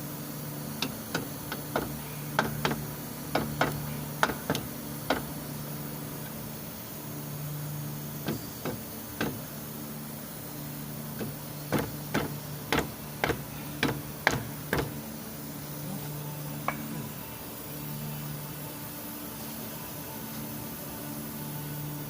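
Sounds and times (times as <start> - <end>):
steady low hum: 0.0 - 22.0
sharp knocks: 0.8 - 5.3, 11.2 - 15.0.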